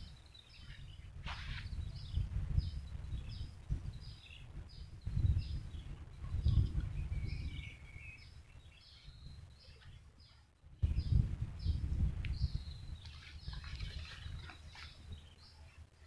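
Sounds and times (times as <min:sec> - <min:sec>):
low rumbling noise: 0:10.7 - 0:13.0.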